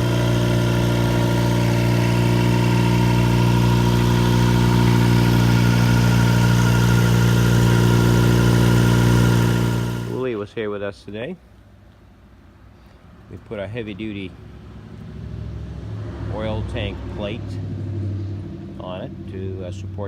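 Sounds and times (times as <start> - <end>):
light aircraft engine running: 0.0 - 10.2.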